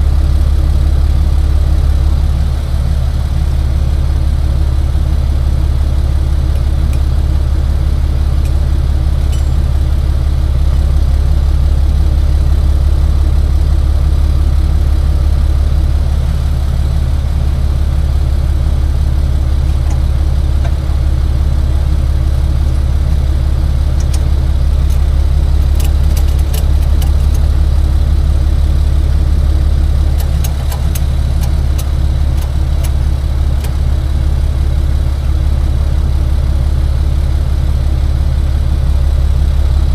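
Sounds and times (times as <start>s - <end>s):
truck engine idling: 0.0s - 39.9s
light clicks and clanks: 24.0s - 27.5s, 30.1s - 34.1s.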